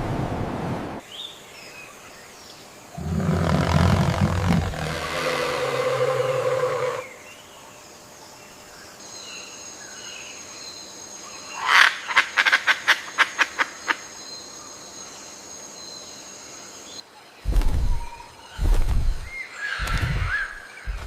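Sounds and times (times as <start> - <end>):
high insect buzz: 2.8 - 7.4
low drawn-out animal call: 3.0 - 7.2.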